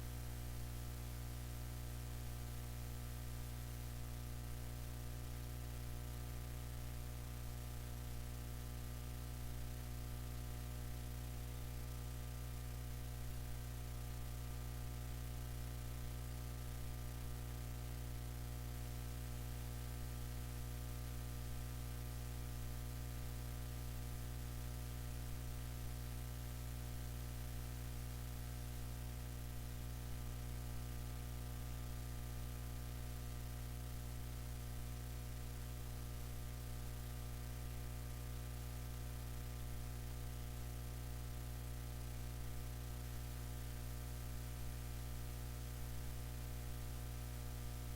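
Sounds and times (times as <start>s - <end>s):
low electrical hum: 0.0s - 47.9s.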